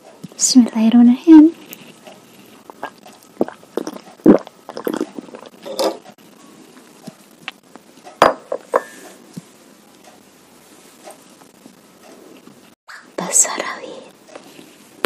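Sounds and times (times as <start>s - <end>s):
cutlery clinking against a bowl: 5.6s - 6.0s.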